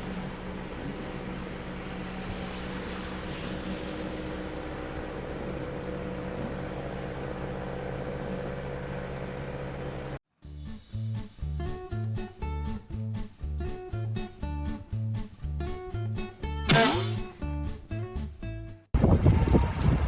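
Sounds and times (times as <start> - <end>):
motor engine humming: 0.0 - 10.2
plucked guitar music: 11.2 - 18.8.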